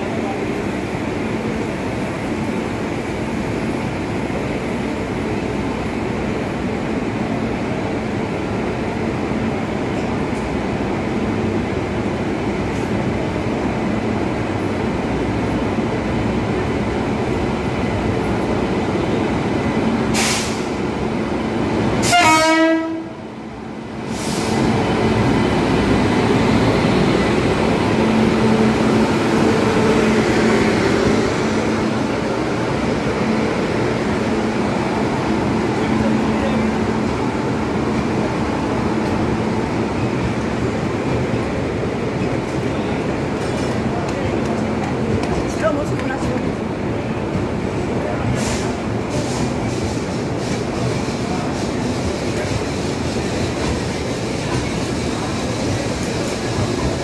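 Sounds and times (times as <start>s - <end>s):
train rumbling: 0.0s - 57.0s
locomotive horn blast: 22.0s - 23.3s.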